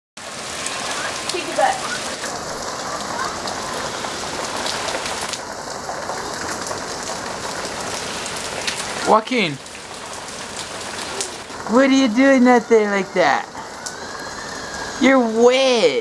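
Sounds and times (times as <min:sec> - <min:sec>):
heavy rain pouring: 0:00.2 - 0:16.0.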